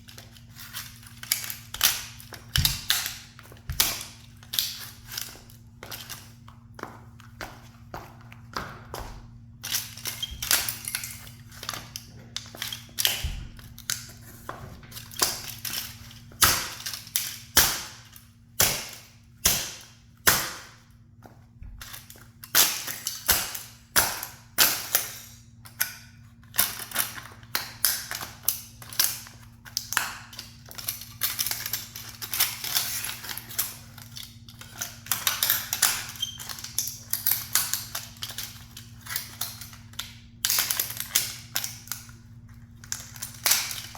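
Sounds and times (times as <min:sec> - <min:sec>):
plastic cracking and crunching: 0:21.7 - 0:43.9.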